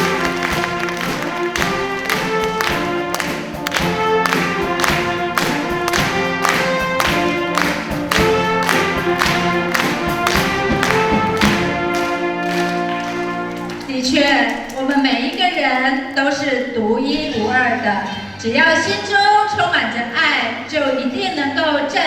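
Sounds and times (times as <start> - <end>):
wind band playing: 0.0 - 15.1
percussion beat: 0.0 - 16.5.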